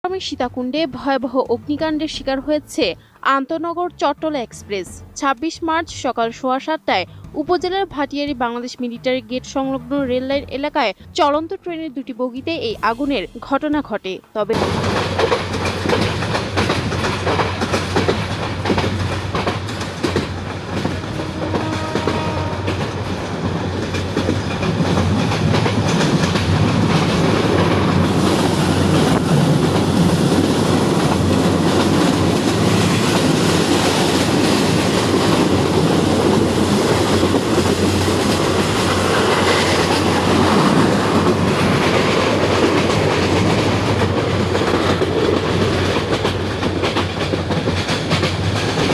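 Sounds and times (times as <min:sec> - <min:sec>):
train wheels clattering on rails: 0:14.6 - 0:48.9.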